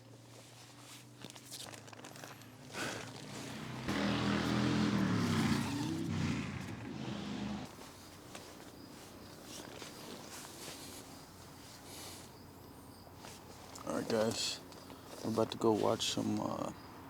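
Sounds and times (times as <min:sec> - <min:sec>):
vehicle engine droning: 0:02.0 - 0:07.8.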